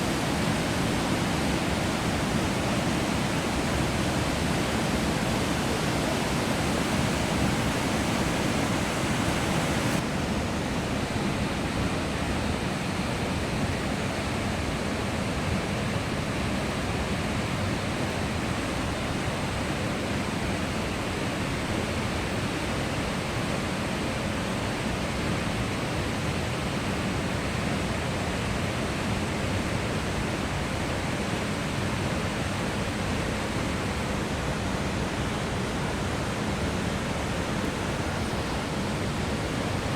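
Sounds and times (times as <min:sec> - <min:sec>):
waterfall rushing: 0:00.0 - 0:13.0, 0:28.8 - 0:39.9.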